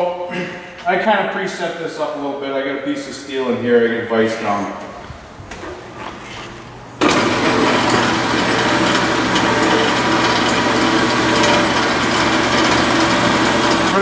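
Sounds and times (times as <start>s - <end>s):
band saw cutting steel: 7.0s - 14.0s.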